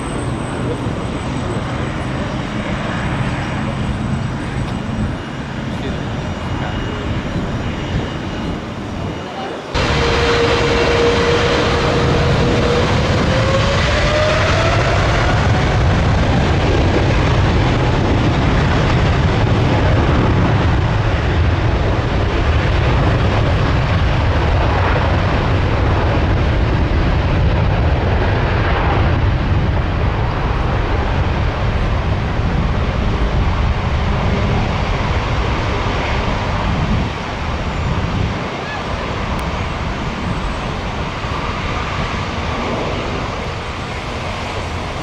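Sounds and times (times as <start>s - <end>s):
jet airliner passing overhead: 0.0s - 45.0s.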